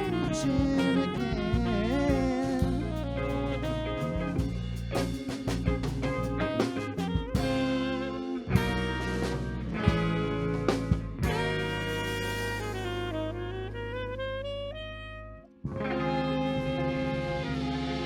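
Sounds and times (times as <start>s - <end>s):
bass: 0.0s - 18.0s
guitar: 0.0s - 18.0s
saxophone: 0.0s - 18.0s
drum hits: 4.3s - 7.9s.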